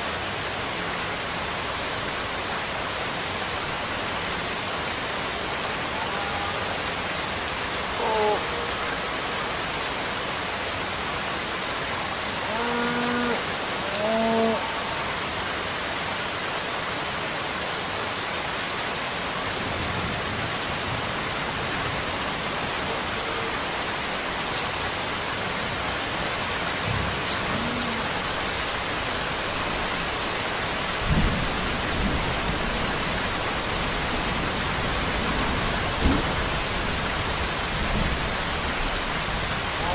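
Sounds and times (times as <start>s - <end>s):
steady rainfall: 0.0s - 39.9s
raindrop ticks: 34.4s - 39.9s.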